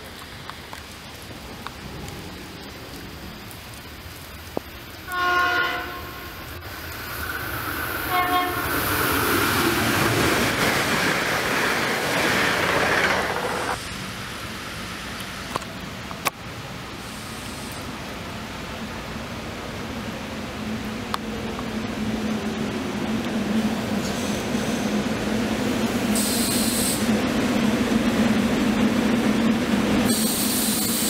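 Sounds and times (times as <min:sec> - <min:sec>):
train passing by: 0:00.0 - 0:31.0
train horn blasts: 0:05.1 - 0:06.4, 0:08.1 - 0:08.6.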